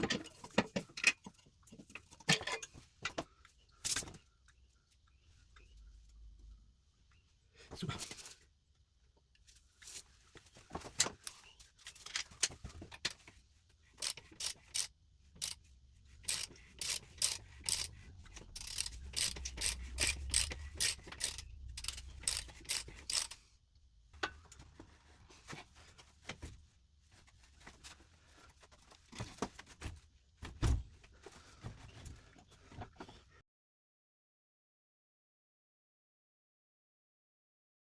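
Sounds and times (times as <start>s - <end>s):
mechanical clicks and clatter: 14.0s - 15.6s, 16.3s - 23.4s.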